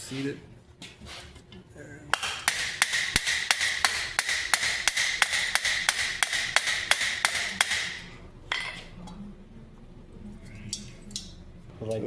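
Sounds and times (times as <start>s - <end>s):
hammer striking ringing steel: 2.1s - 8.8s.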